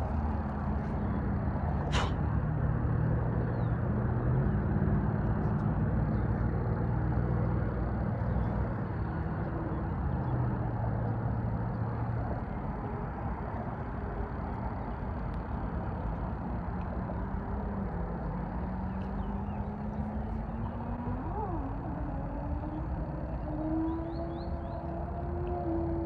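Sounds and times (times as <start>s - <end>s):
low outdoor rumble: 0.0s - 26.0s
short sharp click: 1.9s - 2.2s.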